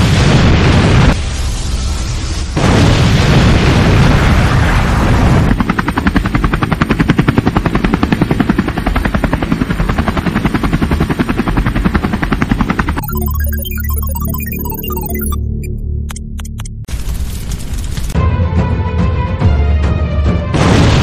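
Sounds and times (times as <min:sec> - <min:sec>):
helicopter rotor chopping: 0:05.4 - 0:15.4
music: 0:18.2 - 0:21.0.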